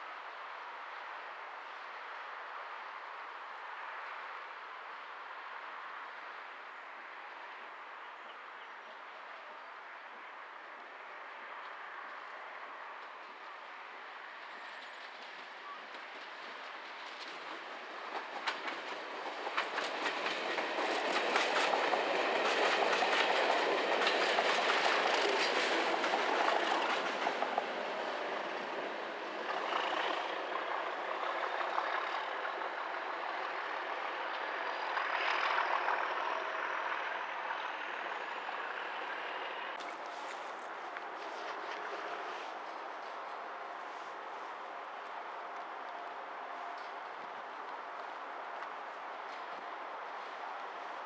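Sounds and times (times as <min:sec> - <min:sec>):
train passing at speed: 0:00.0 - 0:51.0
wheels clicking over rail joints: 0:14.7 - 0:36.8, 0:39.8 - 0:51.0.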